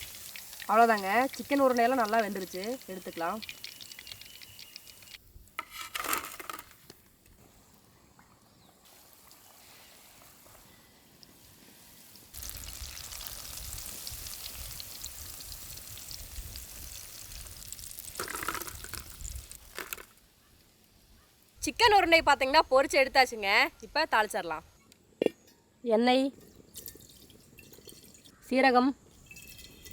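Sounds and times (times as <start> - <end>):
hot oil sizzling and crackling: 0.0 - 7.8, 8.6 - 22.7.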